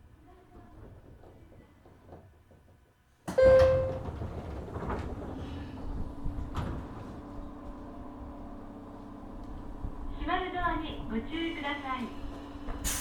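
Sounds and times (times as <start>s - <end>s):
loud clank: 3.3s - 4.3s
train equipment low hum: 3.3s - 13.0s
brief ringing tone: 3.4s - 4.1s.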